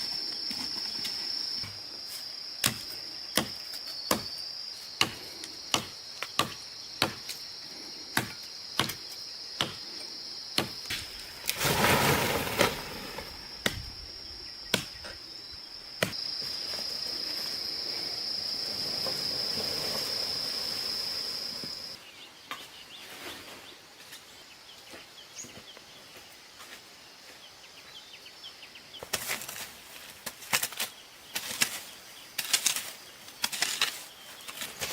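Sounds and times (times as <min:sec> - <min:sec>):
high insect buzz: 0:00.0 - 0:22.0.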